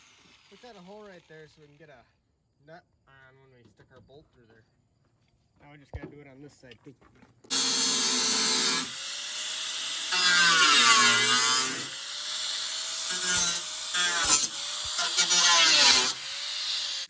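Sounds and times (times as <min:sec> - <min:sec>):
power drill running: 0:00.0 - 0:01.8, 0:07.5 - 0:17.0.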